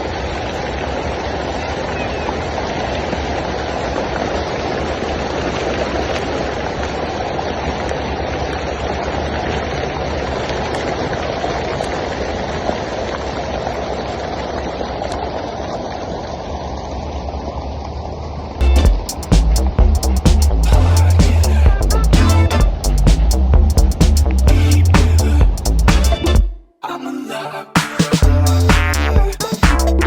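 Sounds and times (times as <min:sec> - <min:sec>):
water fountain jets splashing: 0:00.0 - 0:23.6
low rumble: 0:18.6 - 0:26.4, 0:28.2 - 0:30.0.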